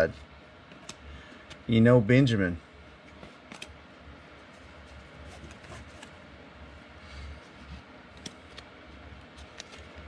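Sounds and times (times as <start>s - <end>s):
low steady hum: 0.0s - 10.0s
cards clicking and rustling: 8.1s - 8.7s, 9.4s - 10.0s.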